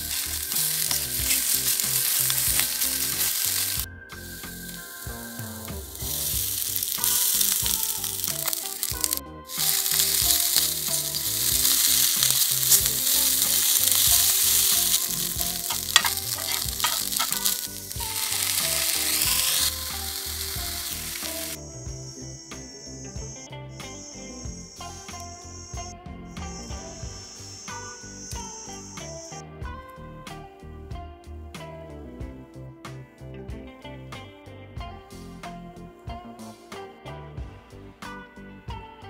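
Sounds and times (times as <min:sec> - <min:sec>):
food sizzling in frying pan: 0:00.0 - 0:29.4
spatula clicks and scrapes: 0:06.7 - 0:19.8.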